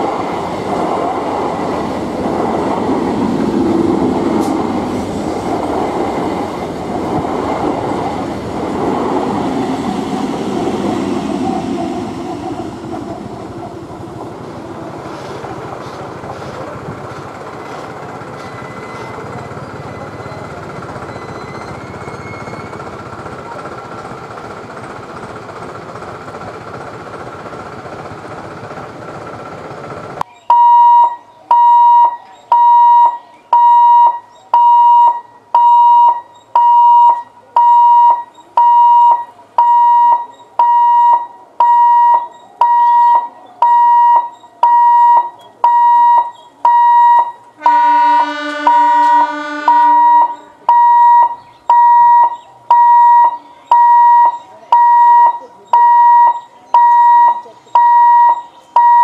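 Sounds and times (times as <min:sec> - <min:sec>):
train wheels rumbling on rails: 0:00.0 - 0:30.3
level crossing warning beeps: 0:30.2 - 0:59.0
train horn: 0:47.6 - 0:50.6.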